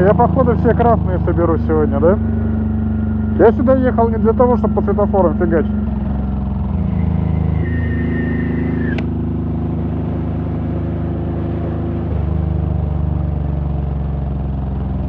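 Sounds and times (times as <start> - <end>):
motorcycle engine running: 0.0 - 15.0
thin high whine: 6.9 - 9.0
sharp click: 8.8 - 9.2.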